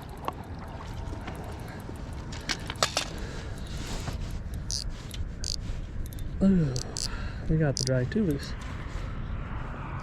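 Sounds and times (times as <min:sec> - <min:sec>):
wind and water rumble: 0:00.0 - 0:10.0
fishing reel drag clicking: 0:02.5 - 0:08.4.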